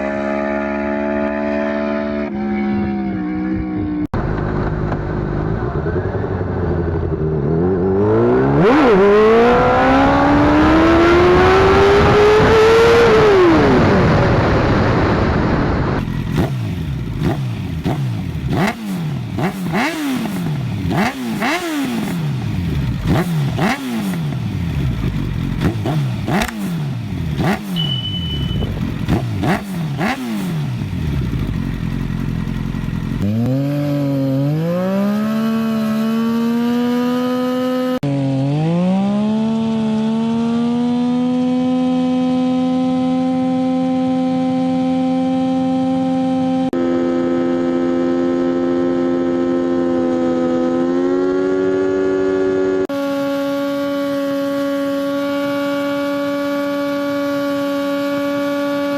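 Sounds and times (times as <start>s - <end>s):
motorcycle accelerating past: 0.0s - 58.9s
motorcycle engine running: 3.2s - 58.9s
motorcycle throttle blips: 8.6s - 38.0s
exhaust crackles: 13.0s - 34.0s.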